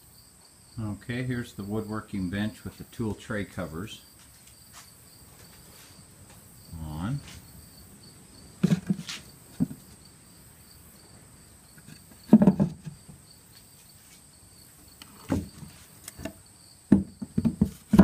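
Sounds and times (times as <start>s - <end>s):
insects chirping: 0.0s - 18.0s
handling noises: 8.6s - 10.0s, 15.0s - 18.0s
short dull knocks: 11.8s - 13.2s, 15.2s - 18.0s.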